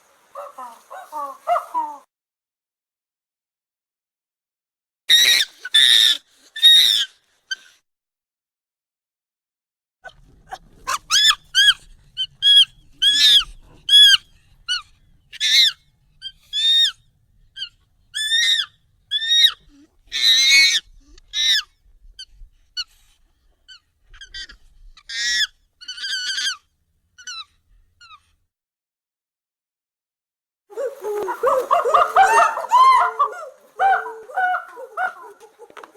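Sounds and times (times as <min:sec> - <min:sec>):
high monkey calls: 0:00.3 - 0:02.1, 0:05.1 - 0:07.7, 0:10.5 - 0:17.0, 0:17.6 - 0:21.7, 0:23.7 - 0:28.2, 0:30.7 - 0:35.9
monkey screech: 0:05.1 - 0:07.7, 0:10.5 - 0:17.0, 0:17.6 - 0:21.7, 0:23.7 - 0:28.2, 0:30.8 - 0:35.4.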